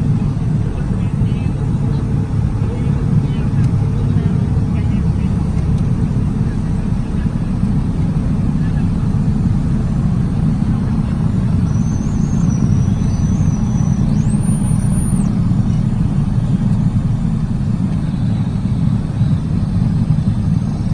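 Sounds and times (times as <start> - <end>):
jet low rumble: 0.0 - 20.9.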